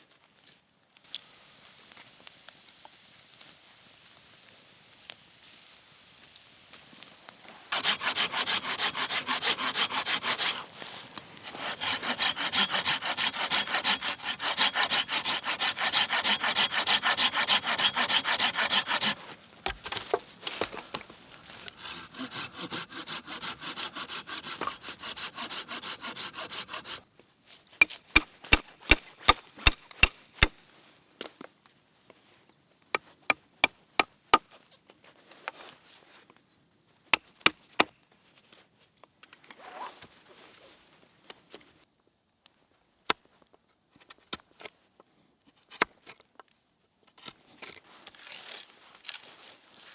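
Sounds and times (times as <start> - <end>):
hand saw cutting wood: 7.7 - 20.8, 21.6 - 27.0, 27.8 - 30.6, 33.3 - 34.4, 37.2 - 37.9
sharp taps on wood: 27.8 - 30.6.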